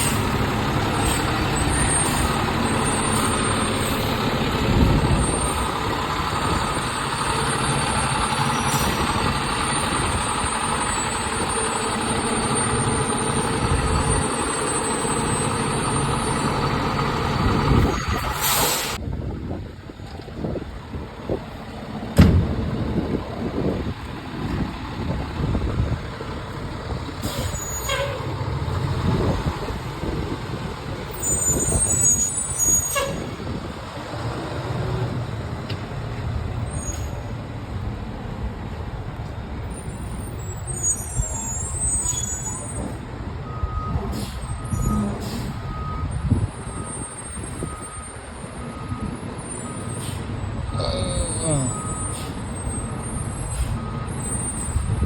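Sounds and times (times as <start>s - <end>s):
diesel engine rumbling: 0.0s - 55.0s
reversing beeper: 50.7s - 55.0s.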